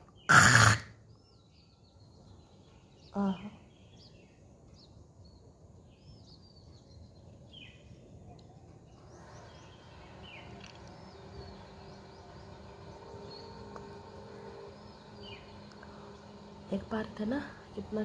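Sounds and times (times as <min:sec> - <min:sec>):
bird chirps and calls: 0:00.0 - 0:18.0.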